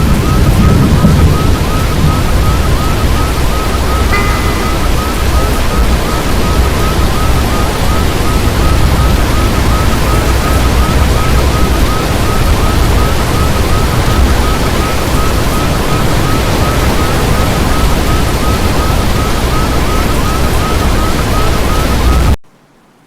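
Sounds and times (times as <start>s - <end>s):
strong wind buffeting microphone: 0.0s - 22.4s
short high chirp: 4.1s - 5.3s.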